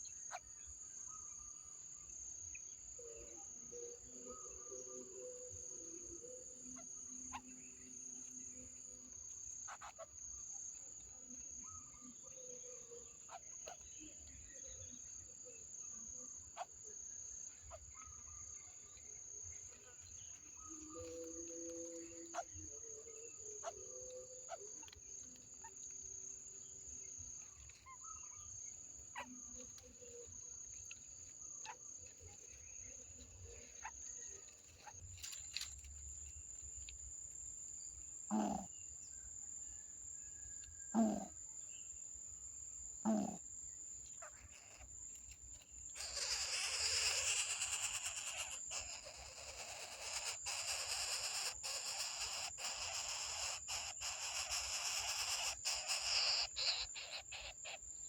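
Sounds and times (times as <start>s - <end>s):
cricket-like insect drone: 0.0s - 58.0s
low animal calls: 38.3s - 38.7s, 40.9s - 41.3s, 43.1s - 43.4s.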